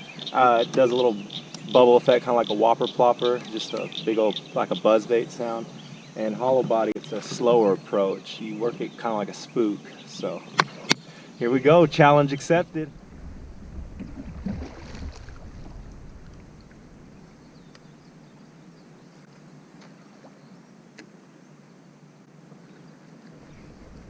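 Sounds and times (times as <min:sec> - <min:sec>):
wind rumble on microphone: 0:11.7 - 0:18.5, 0:23.3 - 0:24.0.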